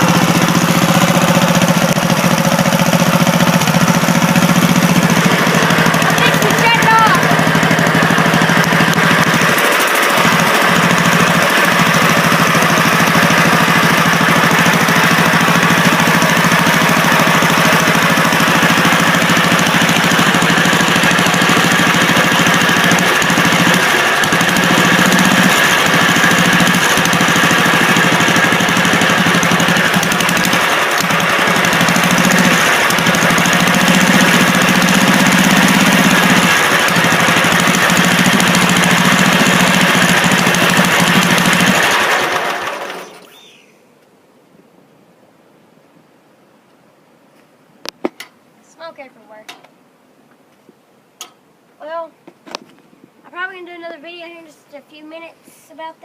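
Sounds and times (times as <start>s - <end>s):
lawn tractor engine running: 0.0s - 43.6s.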